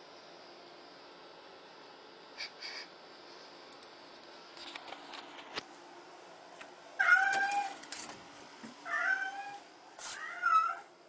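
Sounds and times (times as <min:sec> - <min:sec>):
cat meowing: 0:07.0 - 0:07.8, 0:08.9 - 0:09.6, 0:10.2 - 0:10.9.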